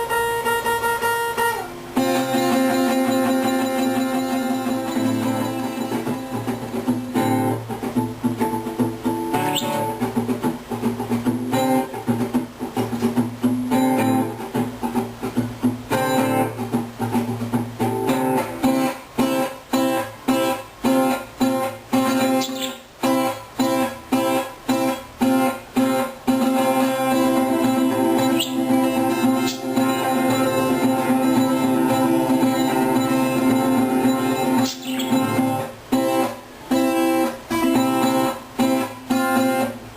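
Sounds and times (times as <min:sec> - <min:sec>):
acoustic guitar: 0:00.0 - 0:39.9
high rising bird chirps: 0:22.3 - 0:22.8, 0:28.2 - 0:29.8, 0:34.4 - 0:35.6.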